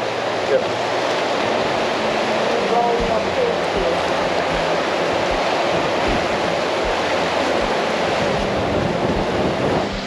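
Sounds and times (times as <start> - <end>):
surf rushing on beach: 0.0 - 10.0
wind blowing across microphone: 0.0 - 10.0
low thumps: 3.0 - 7.8, 8.4 - 10.0.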